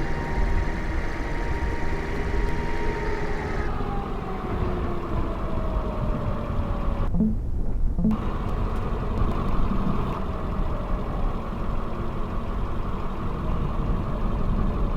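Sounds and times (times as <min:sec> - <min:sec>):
vehicle engine and road noise: 0:00.0 - 0:14.9.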